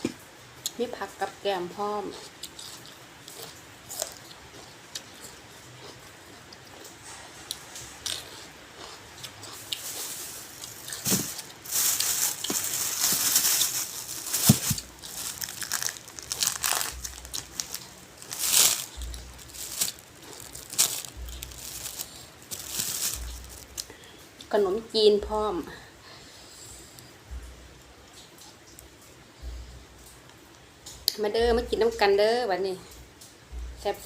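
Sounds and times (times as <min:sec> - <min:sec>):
plastic crinkling and rustling: 0:09.5 - 0:24.0.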